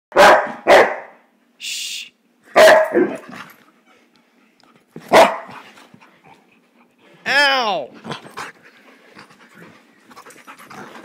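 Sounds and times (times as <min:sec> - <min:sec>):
dog barking: 0:00.1 - 0:01.2, 0:02.5 - 0:03.2, 0:05.1 - 0:05.5.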